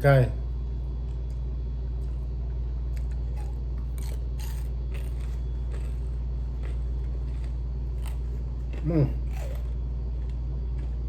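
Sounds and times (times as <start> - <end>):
steady low hum: 0.0 - 11.0
crunchy chewing: 2.0 - 11.0.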